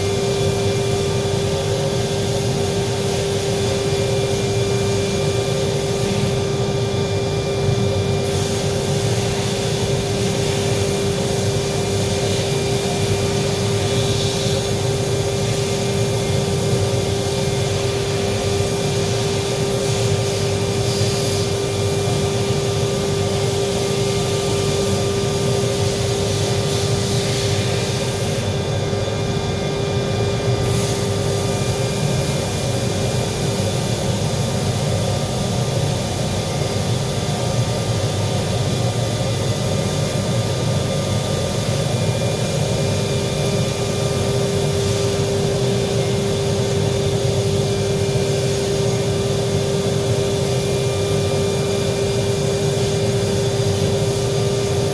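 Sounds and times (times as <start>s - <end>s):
welding arc crackling: 0.0s - 28.6s, 30.6s - 54.9s.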